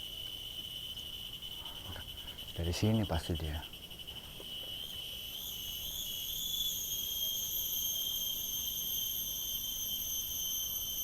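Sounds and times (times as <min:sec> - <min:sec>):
night insects chirring: 0:00.0 - 0:11.0.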